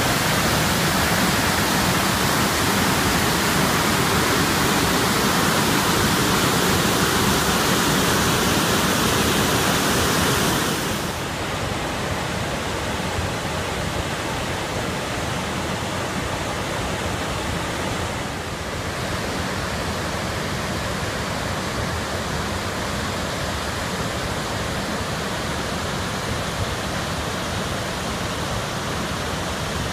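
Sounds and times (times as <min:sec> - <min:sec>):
waterfall roaring: 0:00.0 - 0:29.9.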